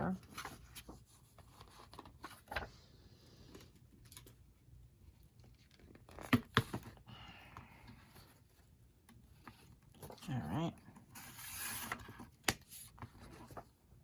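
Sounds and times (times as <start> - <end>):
paper scraping: 11.1 - 12.2.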